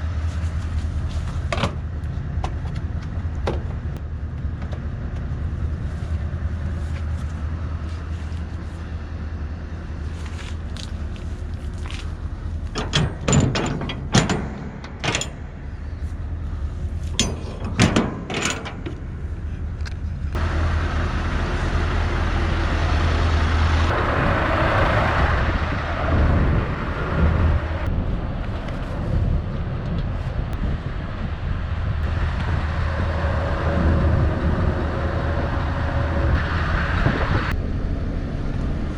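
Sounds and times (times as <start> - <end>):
truck engine running: 0.0 - 38.9
sharp knocks and clanks: 12.7 - 16.1, 17.1 - 19.4.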